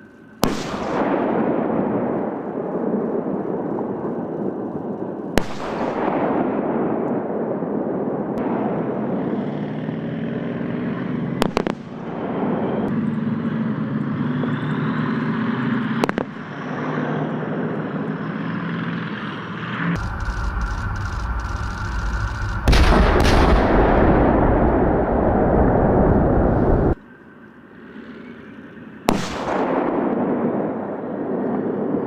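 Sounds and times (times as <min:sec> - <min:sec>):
tank engine droning: 0:00.0 - 0:32.0
gunfire cracks: 0:00.4 - 0:02.6, 0:05.4 - 0:07.3, 0:11.4 - 0:12.9, 0:16.0 - 0:16.6, 0:20.0 - 0:25.2, 0:29.1 - 0:30.5.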